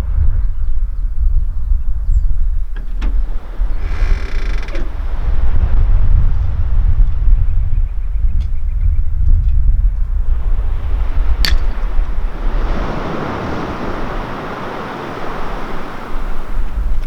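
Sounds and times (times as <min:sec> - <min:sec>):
wind buffeting microphone: 0:00.0 - 0:17.0
ocean surf: 0:10.3 - 0:17.0
sharp click: 0:11.4 - 0:11.9.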